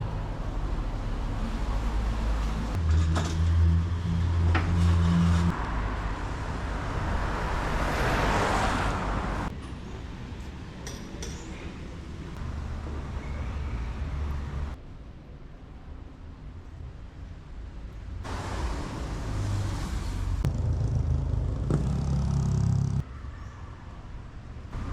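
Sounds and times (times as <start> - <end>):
car passing with tyre hiss: 4.6 - 9.5, 18.2 - 24.9
vehicle engine droning: 19.2 - 23.0.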